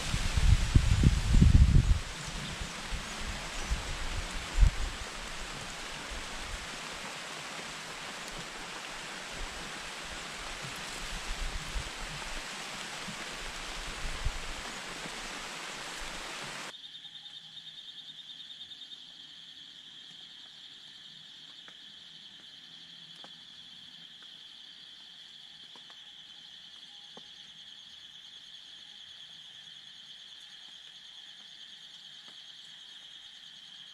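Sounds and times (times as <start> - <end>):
wind and leaves rustling: 0.0 - 16.7.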